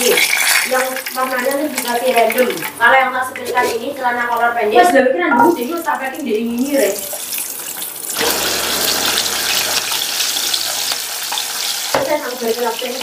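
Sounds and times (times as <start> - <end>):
vegetables sizzling in hot oil: 6.5 - 13.0.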